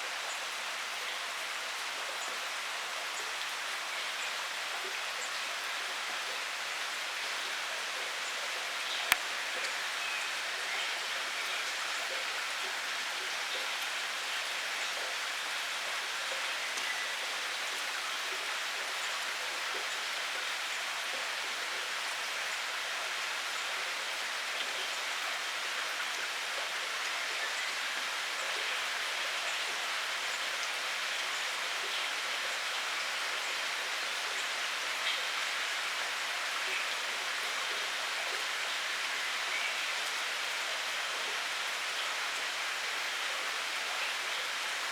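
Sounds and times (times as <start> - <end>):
steady rain falling: 0.0 - 44.9
raindrop ticks: 9.0 - 9.3.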